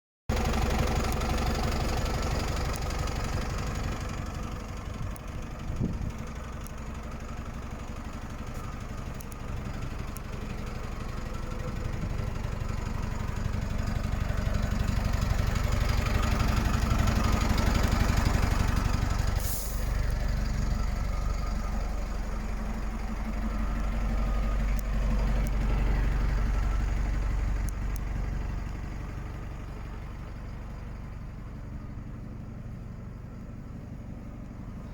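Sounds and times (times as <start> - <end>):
diesel engine idling: 0.3 - 34.9
brief hiss: 19.3 - 20.0.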